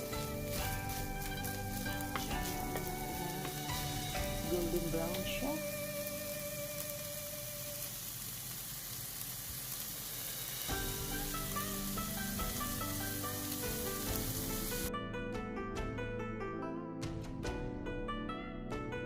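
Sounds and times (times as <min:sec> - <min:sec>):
plucked string music: 0:00.0 - 0:07.4, 0:10.7 - 0:19.0
food sizzling in a pan: 0:00.0 - 0:14.9.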